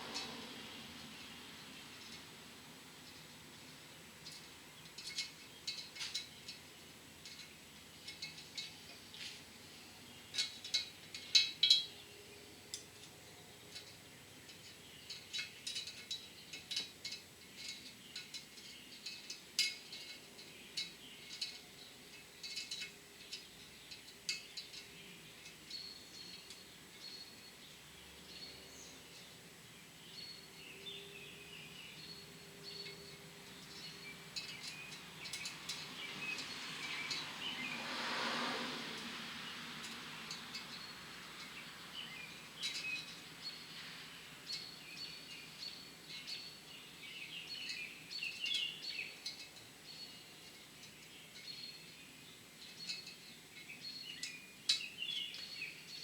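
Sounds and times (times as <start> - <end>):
small metal parts clicking: 4.2 - 6.6, 10.3 - 12.0, 12.7 - 27.2, 32.7 - 37.3.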